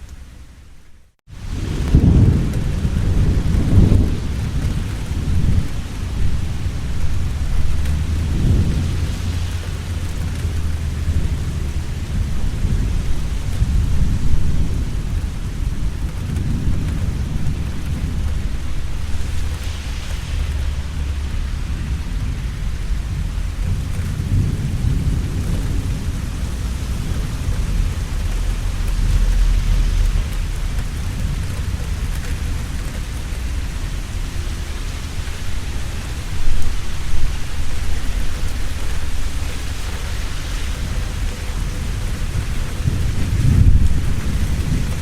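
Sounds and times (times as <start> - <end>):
rain falling: 0.0 - 45.0
thunder rumbling: 0.0 - 45.0.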